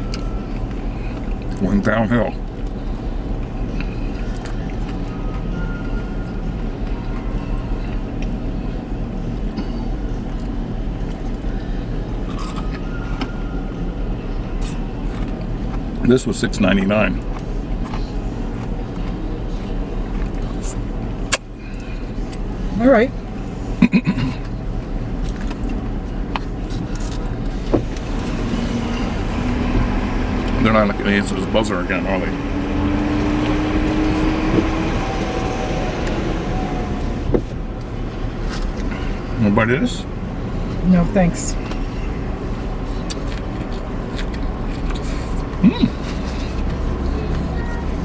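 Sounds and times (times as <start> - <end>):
air conditioning hum: 0.0 - 48.0
car engine idling: 0.0 - 48.0.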